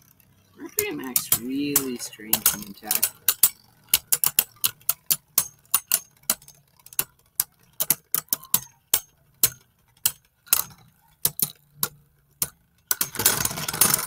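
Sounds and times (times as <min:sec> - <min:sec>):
spinning tops clashing clicks: 0:00.1 - 0:14.0.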